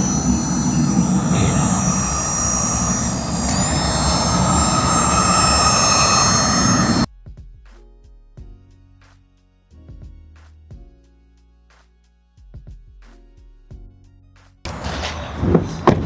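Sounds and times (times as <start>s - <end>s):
heat gun blowing air: 0.0s - 7.1s.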